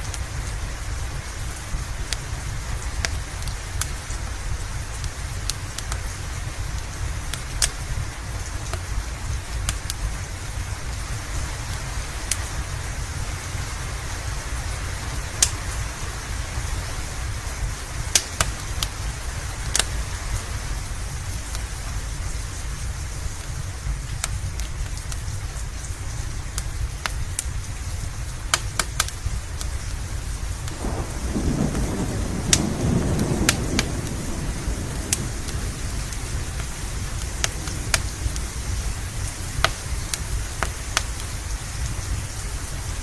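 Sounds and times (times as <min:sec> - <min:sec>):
steady rain: 0:00.0 - 0:43.0
wood fire crackling: 0:00.0 - 0:43.0
low rumble: 0:30.5 - 0:43.0.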